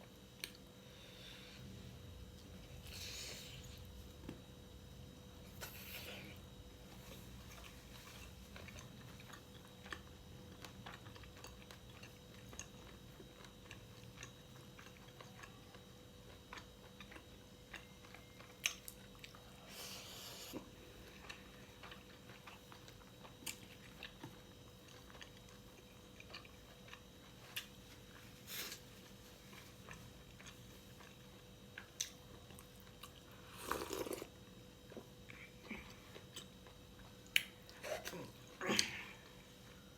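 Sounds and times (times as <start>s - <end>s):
person chewing food: 5.5s - 39.9s.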